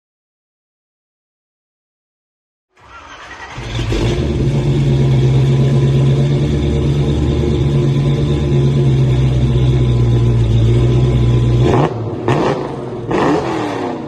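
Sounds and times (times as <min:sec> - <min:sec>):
car engine droning: 0:02.8 - 0:14.0.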